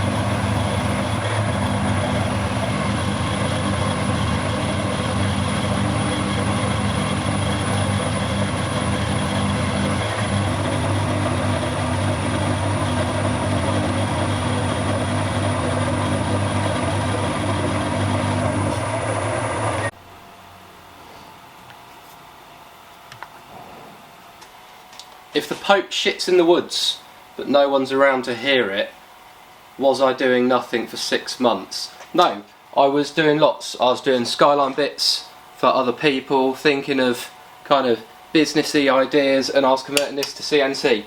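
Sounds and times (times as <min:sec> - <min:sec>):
machine tool cutting hum: 0:00.0 - 0:21.0.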